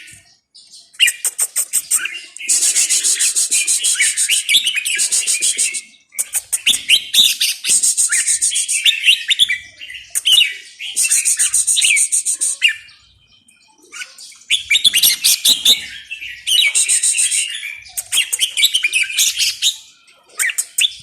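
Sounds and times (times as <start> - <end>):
songbird singing: 0.0 - 21.0.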